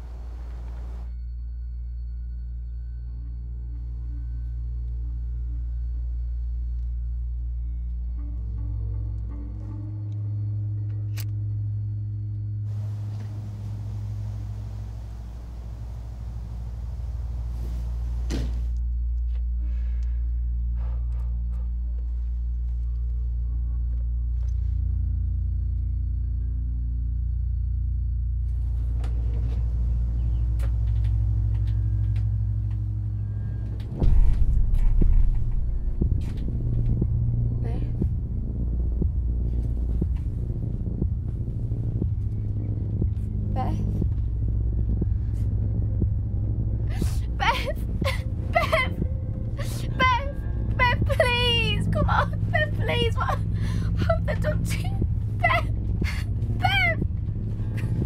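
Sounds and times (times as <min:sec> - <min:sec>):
steady low drone: 0:00.0 - 0:58.0
rough low rumble: 0:11.6 - 0:58.0
soft hiss: 0:12.7 - 0:18.7.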